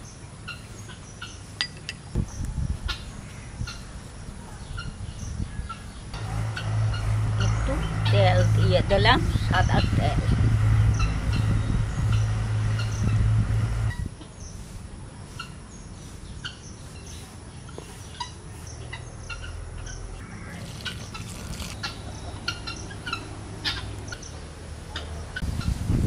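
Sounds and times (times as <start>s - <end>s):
birds chirping: 0.0s - 25.7s
loud low hum: 6.1s - 14.1s.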